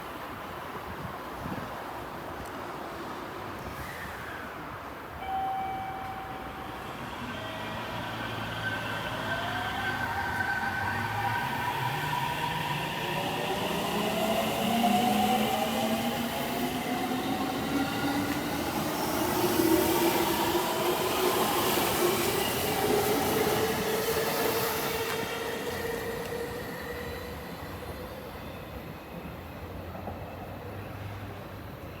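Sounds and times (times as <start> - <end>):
electric train pulling away: 5.2 - 29.4.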